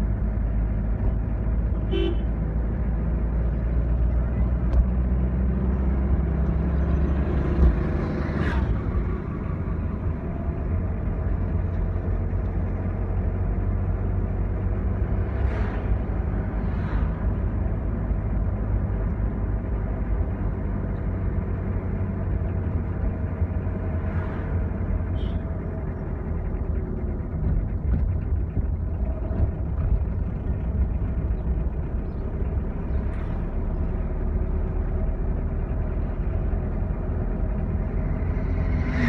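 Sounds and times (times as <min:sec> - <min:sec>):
truck engine and road rumble: 0:00.0 - 0:39.0.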